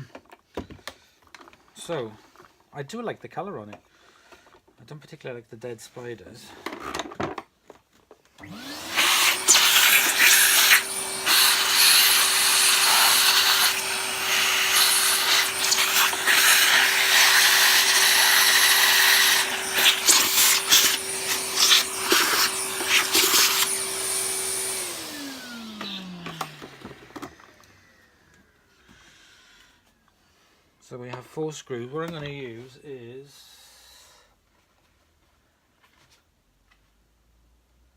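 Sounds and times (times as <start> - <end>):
vacuum cleaner motor whine: 8.4 - 28.6
vacuum suction hiss: 8.8 - 25.6.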